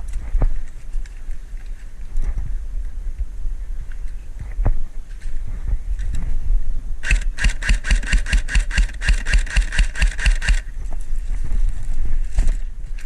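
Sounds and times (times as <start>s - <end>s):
airsoft gun firing full-auto: 7.0s - 10.7s.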